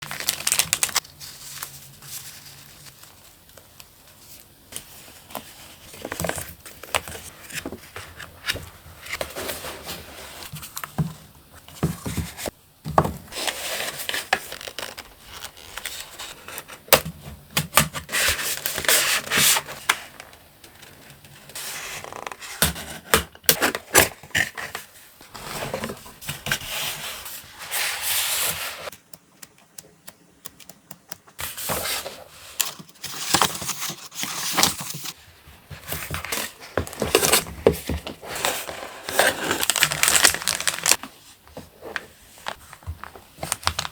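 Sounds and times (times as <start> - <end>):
packaging and paper rustling: 0.0 - 10.8, 31.4 - 43.9.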